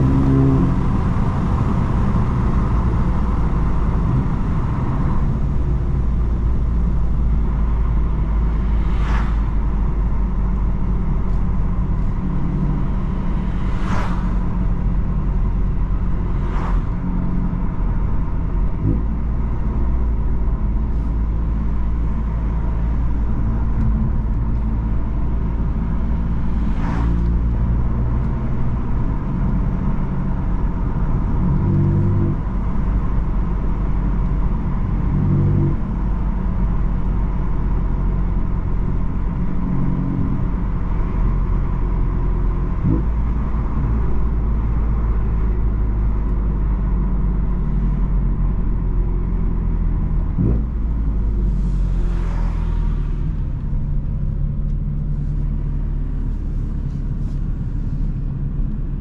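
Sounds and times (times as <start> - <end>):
car engine revving: 0.0 - 45.6
low road rumble: 0.0 - 59.0
car passing by: 8.4 - 10.0, 11.4 - 17.6, 26.0 - 28.3, 51.4 - 54.2.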